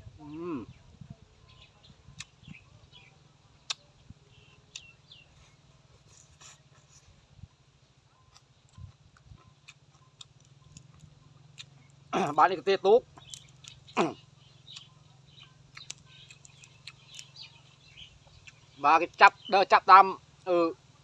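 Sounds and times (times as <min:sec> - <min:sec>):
person chewing with mouth clicks: 0:03.7 - 0:03.9, 0:08.3 - 0:12.4, 0:13.1 - 0:14.9, 0:15.7 - 0:17.4
faint chirps: 0:13.0 - 0:19.5.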